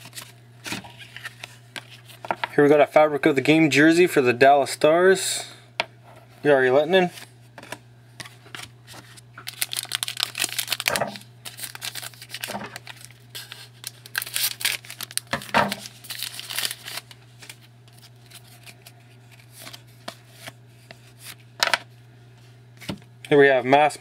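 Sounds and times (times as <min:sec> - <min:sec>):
low steady hum: 0:00.0 - 0:24.0
plastic wrapping crinkling and tearing: 0:08.5 - 0:20.5.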